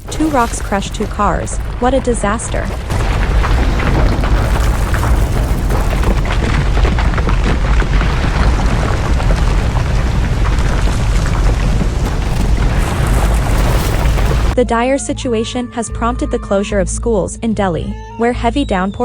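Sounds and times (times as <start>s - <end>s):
landslide rumble: 0.0s - 14.6s
rocks crackling impacts: 0.0s - 14.6s.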